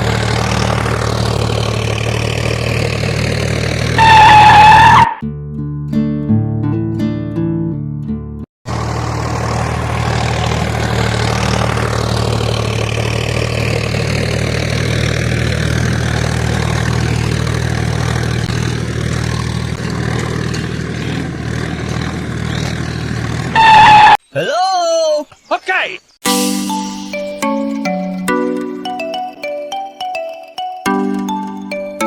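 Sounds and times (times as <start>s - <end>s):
small engine running: 0.0s - 4.4s, 8.7s - 23.8s.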